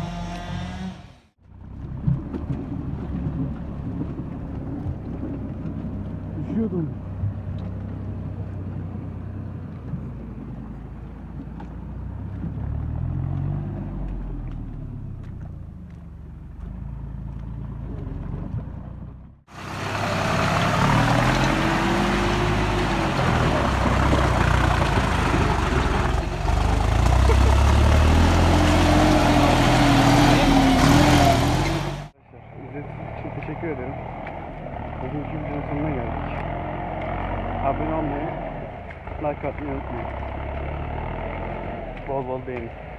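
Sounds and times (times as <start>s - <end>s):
tractor diesel engine revving: 0.0s - 1.7s, 19.4s - 42.9s.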